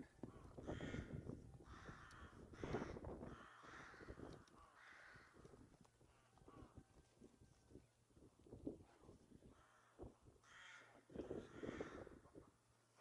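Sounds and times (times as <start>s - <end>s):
crows cawing: 0.3s - 5.5s, 9.5s - 12.2s.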